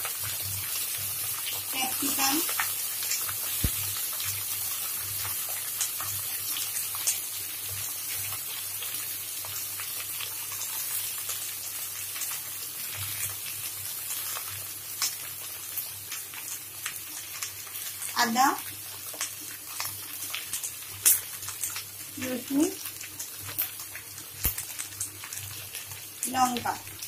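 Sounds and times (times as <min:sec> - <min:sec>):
vegetables sizzling in oil: 0:00.0 - 0:27.0.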